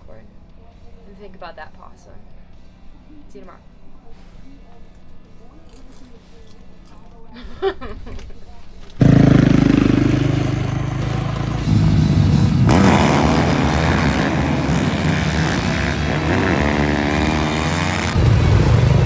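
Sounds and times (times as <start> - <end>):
snow bike engines revving: 9.0 - 19.0.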